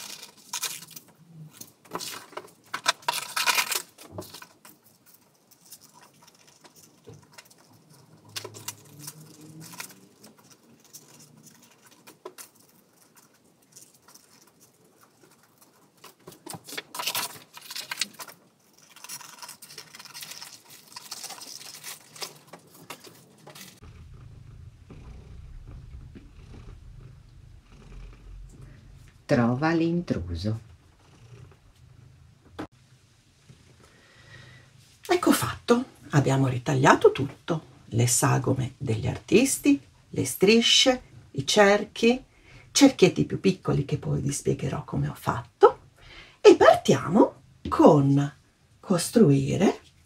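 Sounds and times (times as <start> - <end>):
paper rustling and crinkling: 0.0 - 23.8
cat purring: 5.3 - 16.6, 19.9 - 40.1.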